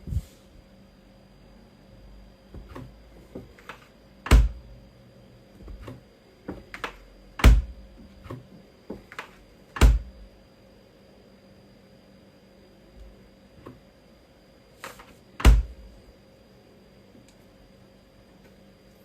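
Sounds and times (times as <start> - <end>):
loud thumps: 4.3 - 4.7, 15.4 - 15.8.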